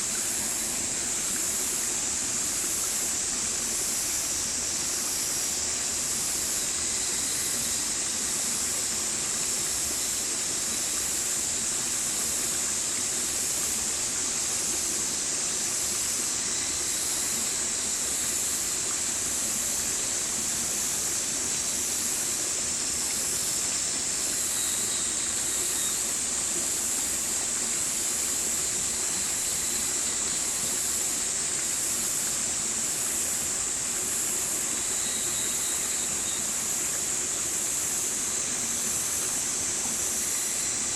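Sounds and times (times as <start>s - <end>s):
stream water flowing: 0.0s - 40.9s.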